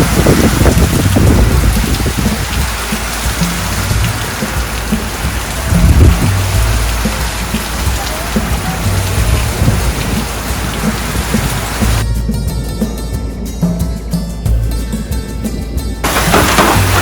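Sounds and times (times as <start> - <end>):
deep low thunder rumble: 0.0 - 12.0
heavy rain pouring: 0.0 - 12.0, 16.0 - 17.0.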